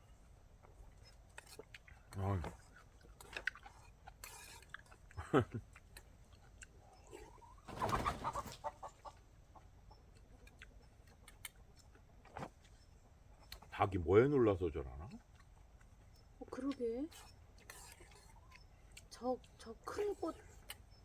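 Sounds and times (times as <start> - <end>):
chickens alarm calls: 6.8 - 13.7.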